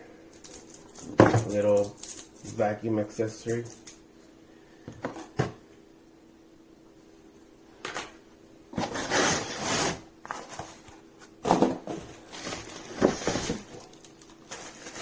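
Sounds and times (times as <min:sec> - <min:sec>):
packaging rustling: 0:08.8 - 0:15.0.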